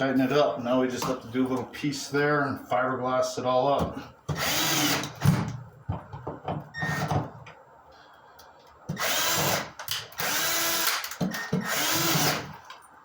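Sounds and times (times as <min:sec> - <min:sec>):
power drill driving screws: 0:04.3 - 0:05.5, 0:06.8 - 0:07.2, 0:08.9 - 0:12.6.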